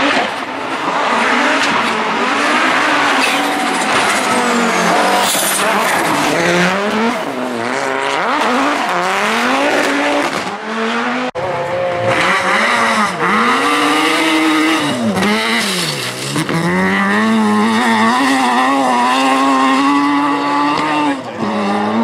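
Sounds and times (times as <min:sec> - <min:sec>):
rally car engine at full throttle: 0:00.0 - 0:22.0.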